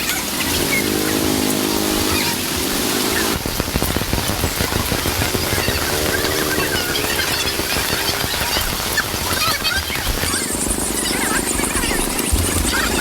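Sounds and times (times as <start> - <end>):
close water drips: 0.0 - 11.1
heavy rain pattering: 0.0 - 13.0
pitched voice-like tone: 5.2 - 11.4.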